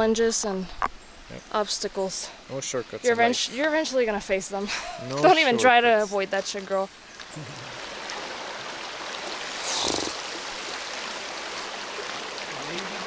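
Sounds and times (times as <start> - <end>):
river water running: 0.0 - 13.0
water swish: 7.4 - 13.0.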